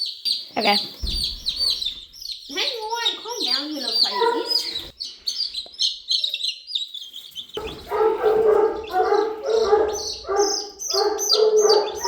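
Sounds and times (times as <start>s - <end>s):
chicks peeping: 0.0s - 12.0s
dog yelping: 4.0s - 4.8s, 7.6s - 12.0s.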